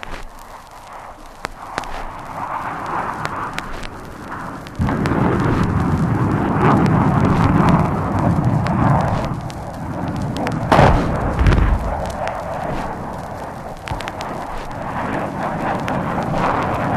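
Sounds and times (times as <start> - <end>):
vinyl record crackle: 0.0 - 16.9
long low rumble: 2.0 - 16.9
explosive blasts: 2.8 - 16.9.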